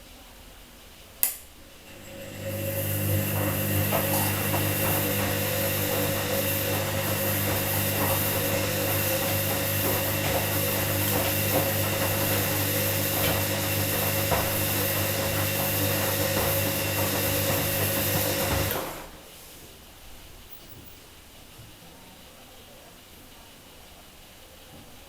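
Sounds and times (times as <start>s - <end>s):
washing machine motor hum: 1.6s - 19.3s
knocks and sloshing from drum: 3.3s - 18.9s.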